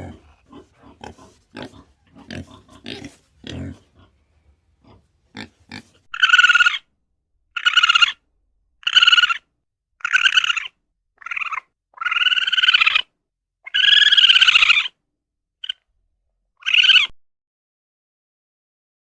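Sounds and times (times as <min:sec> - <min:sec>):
young farm animal crying: 0:00.0 - 0:06.8, 0:07.6 - 0:08.2, 0:08.8 - 0:09.4, 0:10.0 - 0:13.1, 0:13.7 - 0:14.9, 0:16.6 - 0:17.1.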